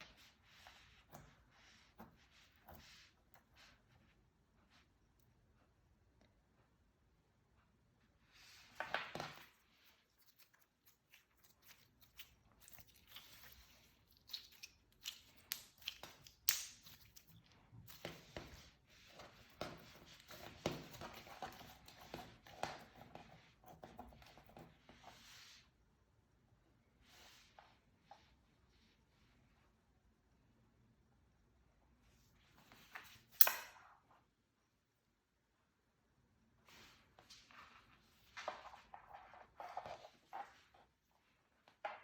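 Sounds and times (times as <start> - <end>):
slime squished by hand: 10.1 - 18.3.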